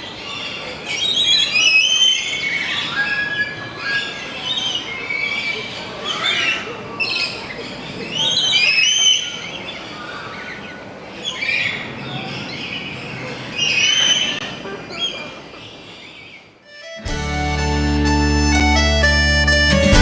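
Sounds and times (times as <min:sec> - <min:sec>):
birds chirping and whistling: 0:00.9 - 0:05.4, 0:13.6 - 0:15.2.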